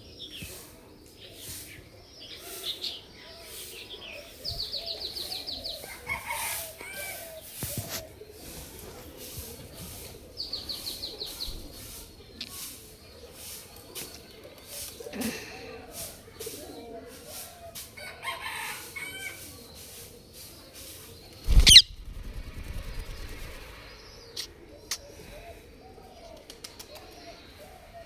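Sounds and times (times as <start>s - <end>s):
parrot chirping: 21.5s - 22.1s.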